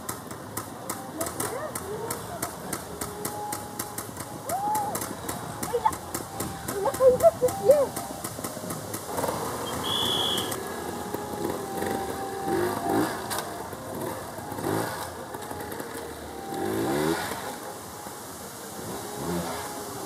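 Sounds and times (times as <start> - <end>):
motorcycle engine revving: 5.0 - 17.8, 18.7 - 20.0.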